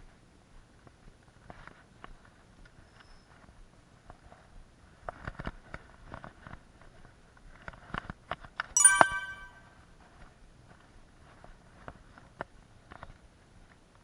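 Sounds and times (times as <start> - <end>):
bright ringing ding: 8.8 - 9.6.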